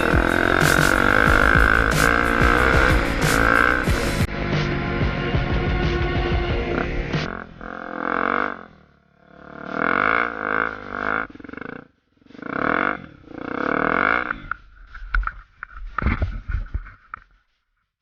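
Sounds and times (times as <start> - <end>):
motorcycle engine revving: 0.0 - 14.9.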